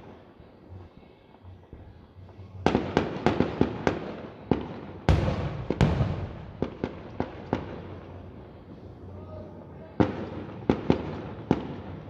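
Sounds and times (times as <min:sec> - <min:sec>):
firework bangs: 0:02.6 - 0:08.3, 0:10.0 - 0:12.0
heavy rumbling firework boom: 0:05.1 - 0:06.8.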